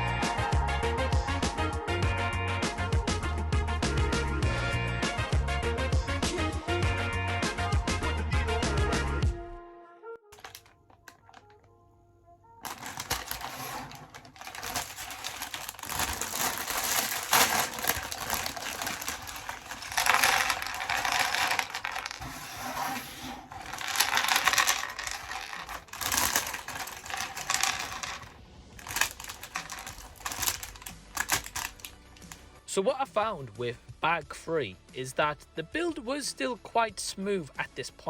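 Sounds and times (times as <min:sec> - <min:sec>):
plastic bricks clicking and clattering: 0:10.3 - 0:11.7, 0:12.6 - 0:22.3, 0:22.9 - 0:32.4.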